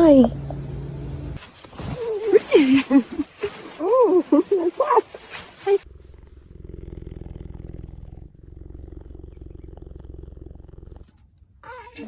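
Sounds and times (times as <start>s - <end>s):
leopard purring: 3.3s - 11.4s.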